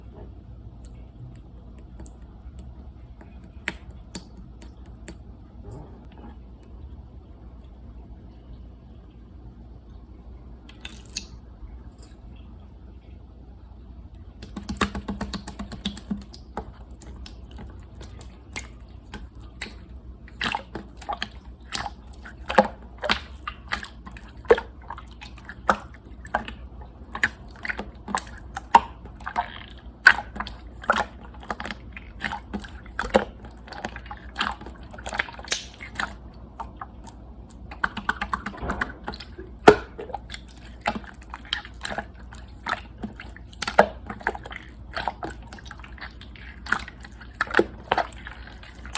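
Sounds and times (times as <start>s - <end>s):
slime clicking and popping: 0.8s - 5.2s, 10.7s - 11.4s, 14.4s - 24.7s, 25.4s - 44.4s.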